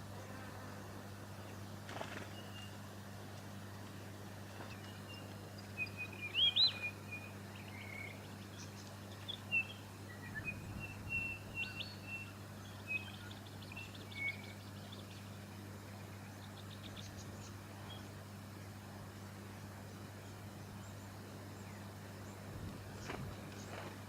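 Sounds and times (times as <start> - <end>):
steady low hum: 0.0 - 24.0
bird chirping: 1.4 - 2.8, 4.5 - 18.2.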